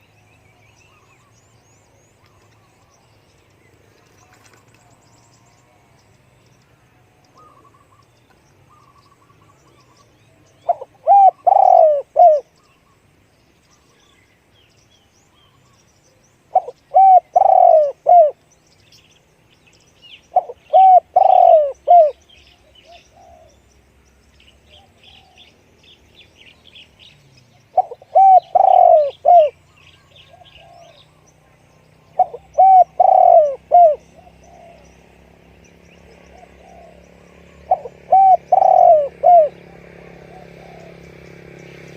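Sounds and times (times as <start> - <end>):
small birds chirping: 0.0 - 41.9
dove cooing: 8.7 - 12.6, 16.5 - 18.4, 20.3 - 23.6, 24.7 - 25.6, 27.7 - 31.2, 32.0 - 35.1, 36.1 - 41.3.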